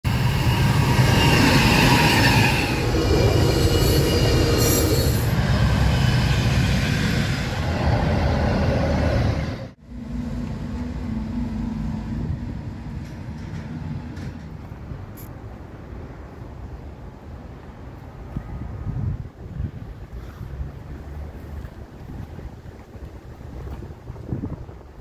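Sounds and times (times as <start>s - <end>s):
diesel locomotive engine hum: 0.0s - 25.0s
train rumble: 0.0s - 25.0s
metallic wheel squeal: 0.2s - 7.6s.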